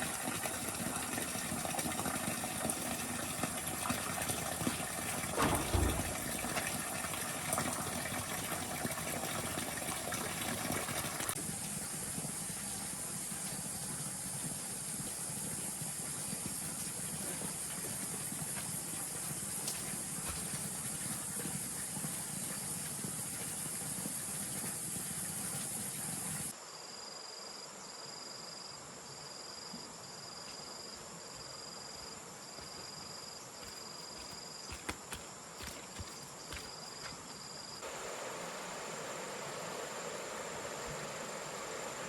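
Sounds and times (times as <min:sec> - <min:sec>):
insects buzzing: 0:30.3 - 0:42.0.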